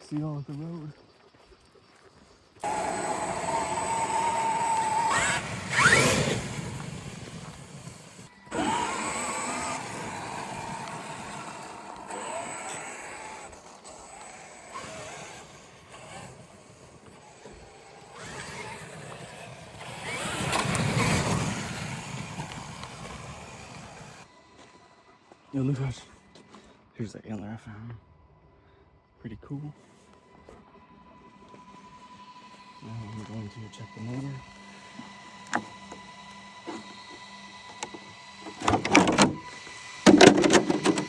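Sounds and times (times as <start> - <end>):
tyre and chassis noise: 2.6 - 24.3, 35.4 - 41.0
rc truck electric motor whining: 2.6 - 26.0, 31.0 - 41.0.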